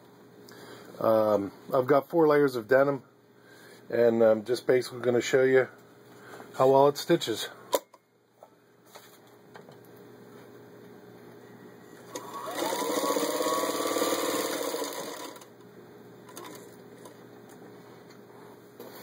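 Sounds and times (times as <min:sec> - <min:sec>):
sewing machine motor whine: 0:11.9 - 0:15.5.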